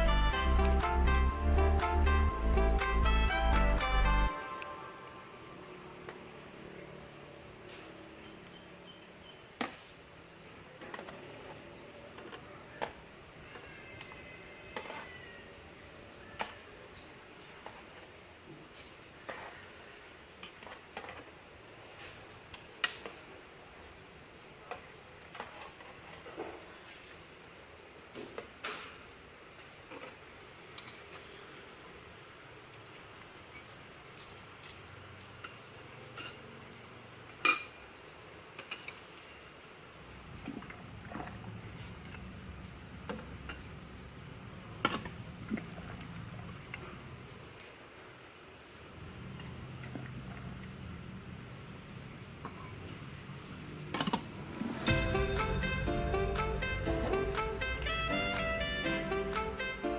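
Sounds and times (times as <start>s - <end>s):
utensils clinking on bowls: 33.5s - 36.6s, 37.3s - 39.2s.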